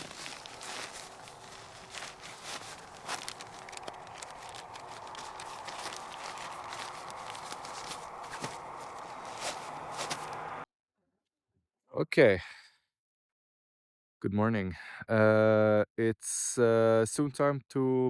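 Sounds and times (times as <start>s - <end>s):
footsteps crunching in snow: 0.0s - 10.6s.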